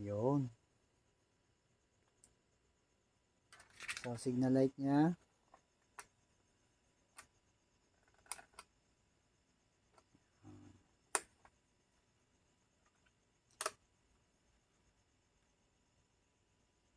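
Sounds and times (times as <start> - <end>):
sharp clicks: 11.1 - 11.6, 12.8 - 13.8.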